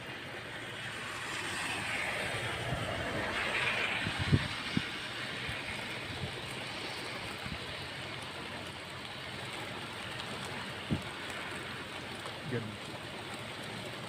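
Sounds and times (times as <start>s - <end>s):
storm wind on microphone: 1.3s - 7.8s, 10.8s - 11.2s.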